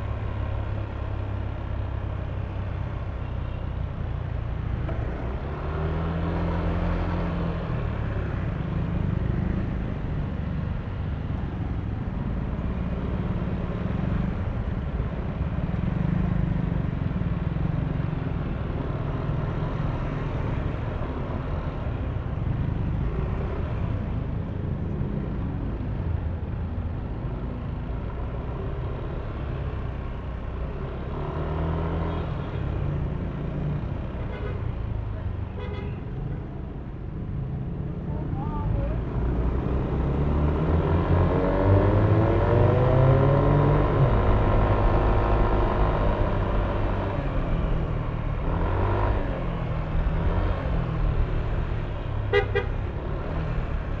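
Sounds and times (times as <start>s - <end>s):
road noise: 0.0s - 54.0s.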